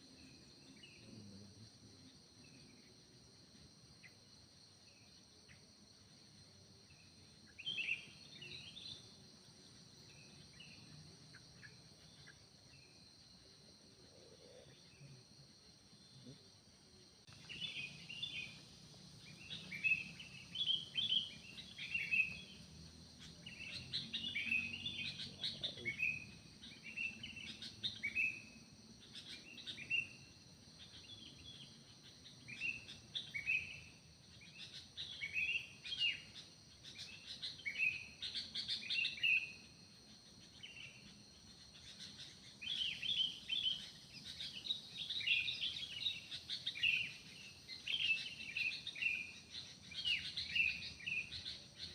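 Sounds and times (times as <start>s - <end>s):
high-pitched insect drone: 0.0s - 51.9s
birds chirping: 17.3s - 51.9s.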